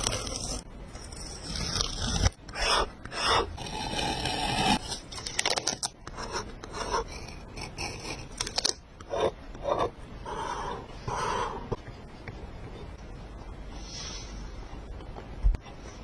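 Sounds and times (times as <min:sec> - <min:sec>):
paper scraping and rubbing: 0:00.0 - 0:09.8.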